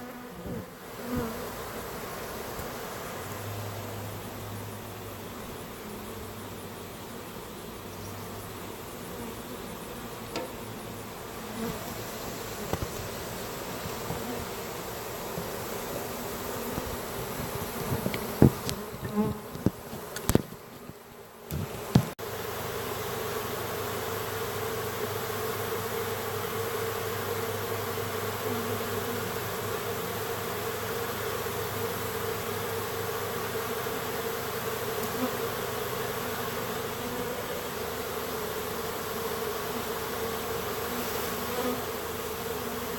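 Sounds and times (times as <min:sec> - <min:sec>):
honeybee swarm buzzing: 0:00.0 - 0:42.9
sharp knocks and clunks: 0:10.3 - 0:10.6, 0:17.8 - 0:20.6, 0:21.5 - 0:22.2.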